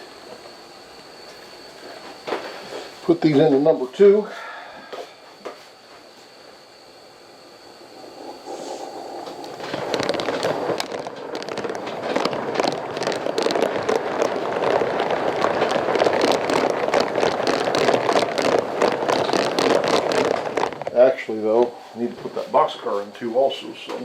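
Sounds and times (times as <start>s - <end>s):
steam locomotive exhaust crackling: 7.6s - 24.0s.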